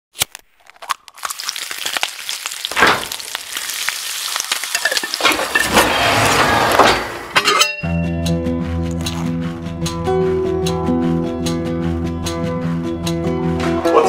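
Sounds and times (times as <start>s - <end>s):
food frying in pan: 1.2s - 5.7s.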